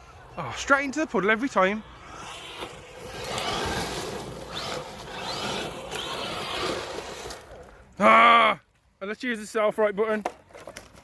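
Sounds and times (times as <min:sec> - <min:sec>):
wheels churning mud and water: 0:01.6 - 0:07.5
electric motor whine: 0:01.8 - 0:07.5.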